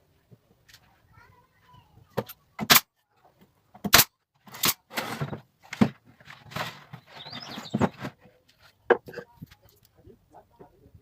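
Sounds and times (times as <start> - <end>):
scraping and rustling of wood: 4.4 - 9.8
wooden knocks: 8.8 - 9.3.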